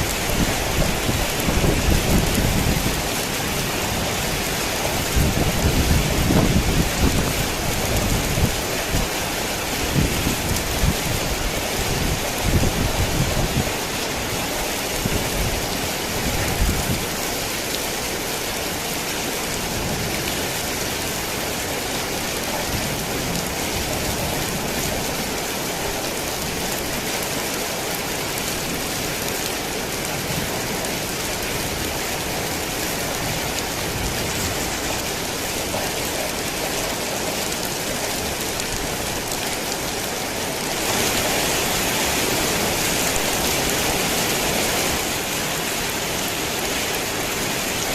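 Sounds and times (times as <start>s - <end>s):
heavy rain falling: 0.0s - 47.9s.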